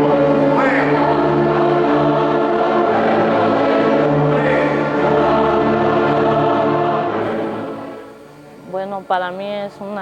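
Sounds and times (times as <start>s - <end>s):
choir singing: 0.0s - 8.2s
instrumental accompaniment: 0.0s - 8.7s.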